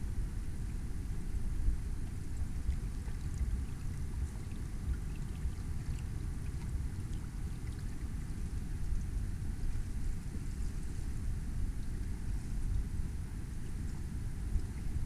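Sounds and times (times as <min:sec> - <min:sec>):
wind rumble on microphone: 0:00.0 - 0:15.0
water lapping against boat hull: 0:00.6 - 0:15.0
small water splashes: 0:02.0 - 0:09.1.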